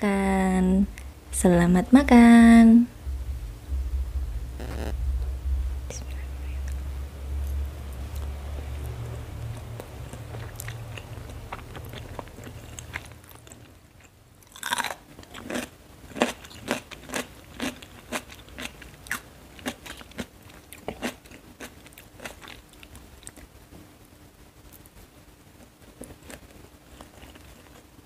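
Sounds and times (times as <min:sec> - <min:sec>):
crunchy chewing of noodles: 0:08.1 - 0:23.5, 0:25.9 - 0:28.0.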